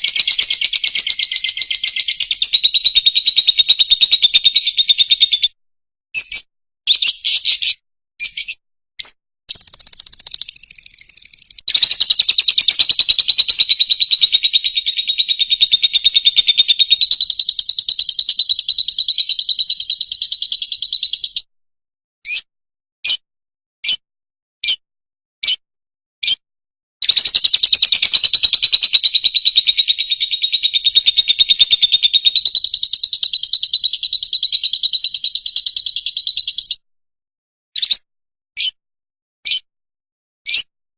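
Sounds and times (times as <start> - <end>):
lovebird chirping and trilling: 0.0 - 5.6, 6.2 - 21.5, 22.3 - 23.2, 27.0 - 36.8, 37.8 - 38.0, 38.6 - 38.8, 39.4 - 39.7, 40.5 - 40.7.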